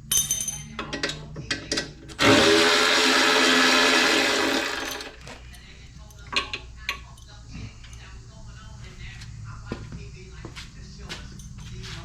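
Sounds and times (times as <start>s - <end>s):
sharp metal clinks: 0.0s - 0.8s
power tool running: 2.2s - 5.2s.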